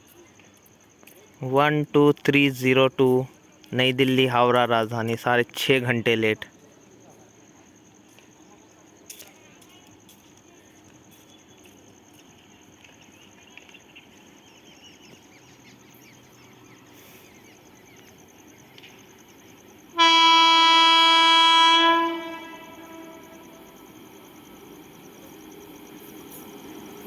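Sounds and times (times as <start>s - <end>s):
high insect trill: 0.0s - 27.0s
train horn blast: 20.0s - 23.8s.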